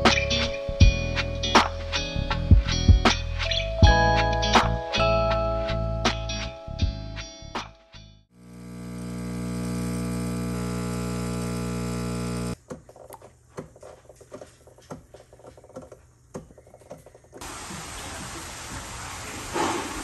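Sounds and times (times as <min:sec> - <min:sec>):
electric appliance motor hum: 0:08.3 - 0:12.6.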